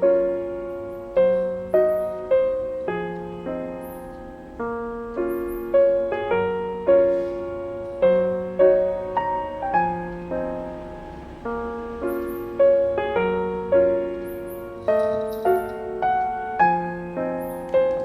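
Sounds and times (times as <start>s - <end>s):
gentle solo piano: 0.0s - 18.0s.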